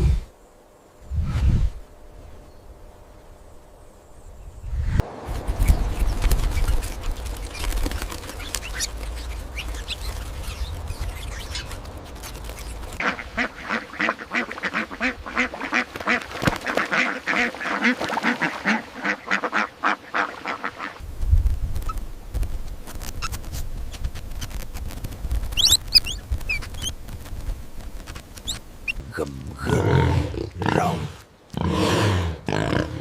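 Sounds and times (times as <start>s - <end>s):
ducks quacking: 13.0s - 21.0s.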